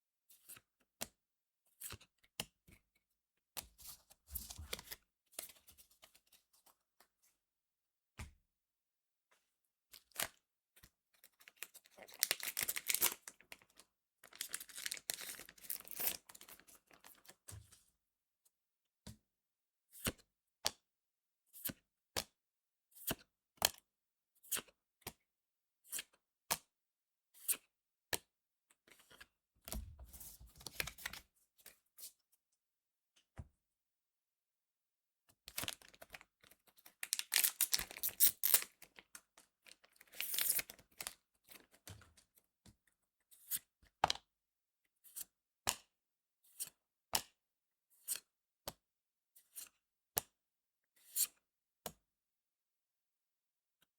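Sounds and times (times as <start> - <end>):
wrappers tearing and crinkling: 12.1 - 13.2, 14.3 - 16.4, 37.0 - 38.8.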